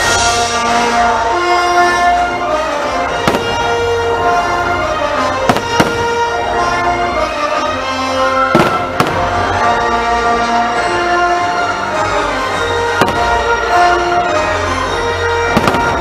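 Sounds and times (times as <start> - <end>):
orchestral music: 0.0 - 16.0
fireworks bangs: 3.1 - 4.0, 5.4 - 6.3, 8.5 - 9.5, 13.0 - 13.5, 15.5 - 16.0.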